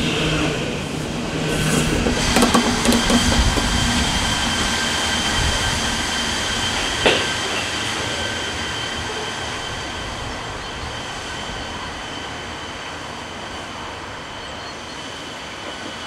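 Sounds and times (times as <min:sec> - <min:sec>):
train rolling with high whine: 0:00.0 - 0:16.0
sharp clunk: 0:02.0 - 0:04.7.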